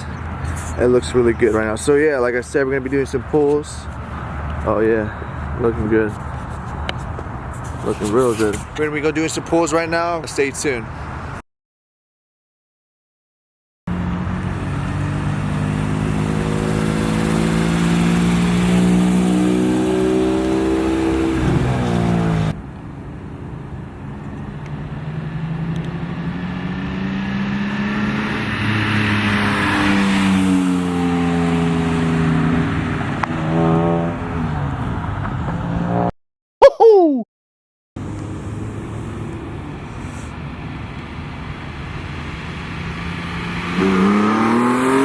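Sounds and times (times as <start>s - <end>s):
car engine accelerating: 13.9s - 22.6s, 41.9s - 45.0s.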